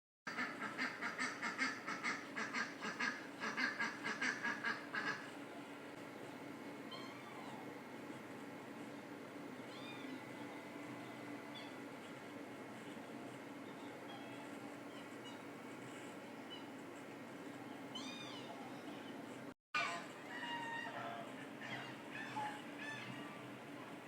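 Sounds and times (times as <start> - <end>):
duck quacking: 0.3 - 5.3
steady low hum: 0.3 - 24.0.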